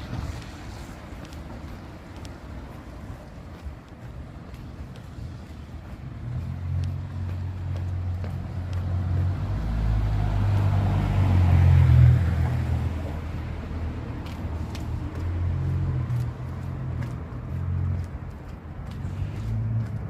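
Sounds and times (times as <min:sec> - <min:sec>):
car passing on wet street: 0:00.0 - 0:20.0.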